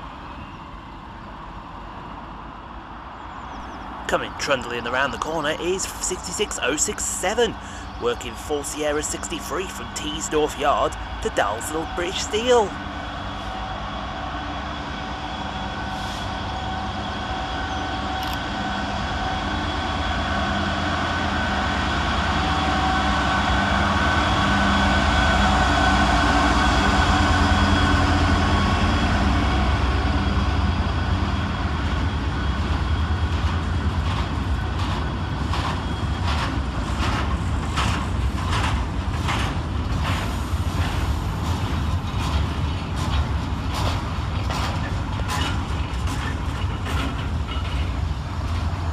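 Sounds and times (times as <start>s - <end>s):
diesel locomotive engine: 0.0s - 48.9s
train wheels clacking over rail joints: 33.2s - 48.8s.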